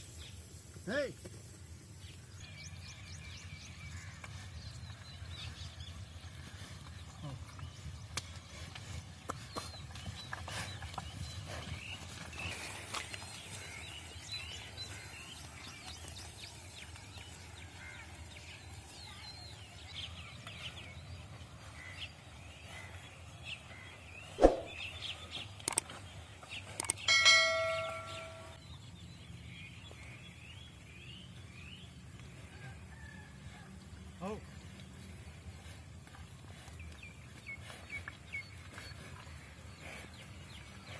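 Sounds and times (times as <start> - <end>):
small birds chirping: 0.0 - 33.3, 34.0 - 40.9
bell-like ringing tone: 27.1 - 28.6.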